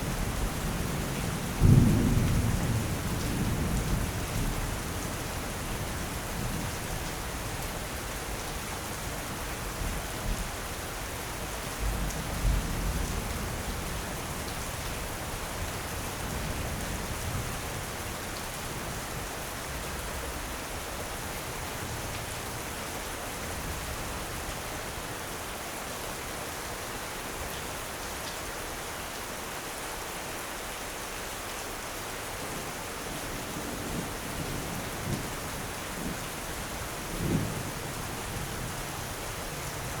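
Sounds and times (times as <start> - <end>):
steady rain hissing: 0.0 - 40.0.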